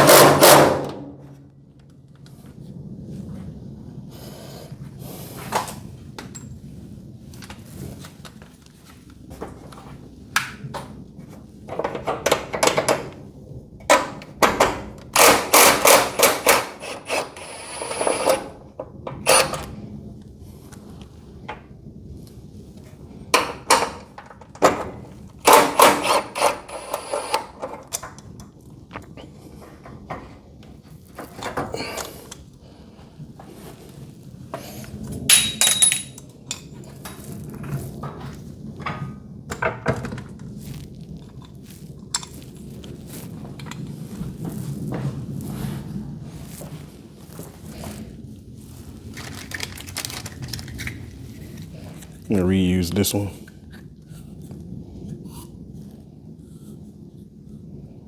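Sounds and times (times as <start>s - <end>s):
metallic clatter of hand tools: 35.3s - 36.7s.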